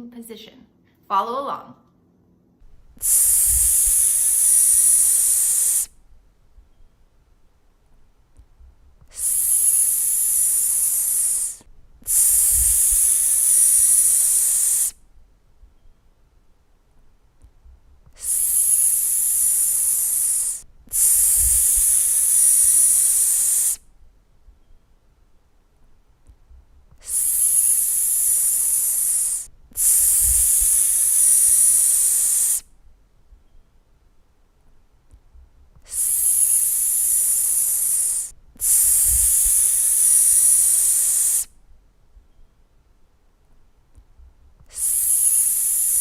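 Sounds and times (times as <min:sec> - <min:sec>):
high hissing s sound: 0:03.0 - 0:06.0, 0:09.1 - 0:15.0, 0:18.2 - 0:23.8, 0:27.0 - 0:32.7, 0:35.8 - 0:41.5, 0:44.7 - 0:46.0.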